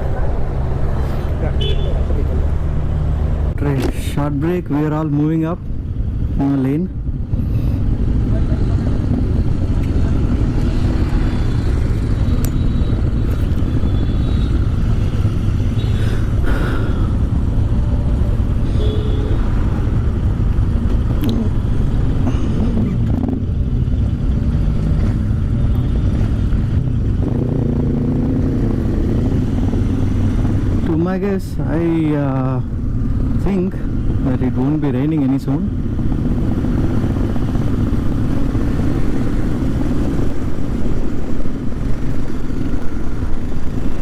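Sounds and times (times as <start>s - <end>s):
other motorcycles: 0.0s - 44.0s
wind and road noise: 0.0s - 44.0s
motorcycle engine running: 5.8s - 30.9s.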